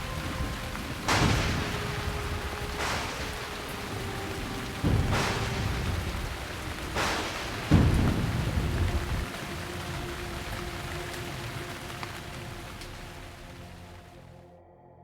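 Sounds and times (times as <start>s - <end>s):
rain-like rushing with rumble: 0.0s - 14.4s.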